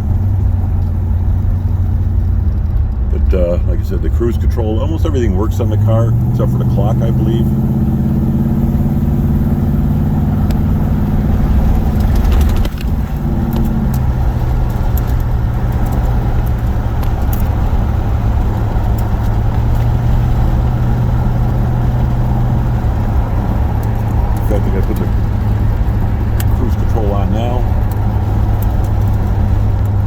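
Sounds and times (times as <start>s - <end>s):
car engine droning while driving: 0.0s - 30.0s.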